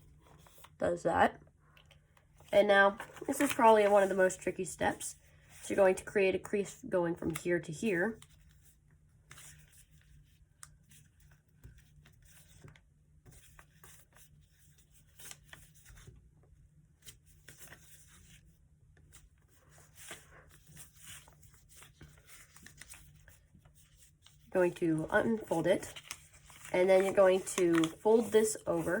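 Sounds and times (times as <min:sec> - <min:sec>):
paper rustling as it is folded: 0:02.4 - 0:04.5, 0:08.1 - 0:29.0.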